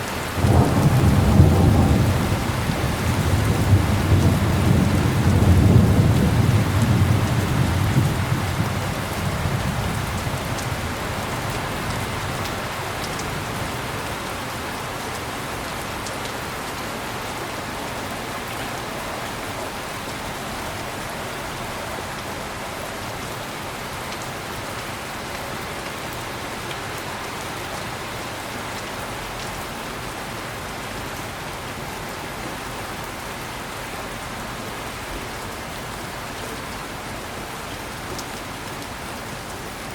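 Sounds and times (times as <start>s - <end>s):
heavy rain falling: 0.0s - 39.9s
thunder rolling: 0.4s - 10.1s.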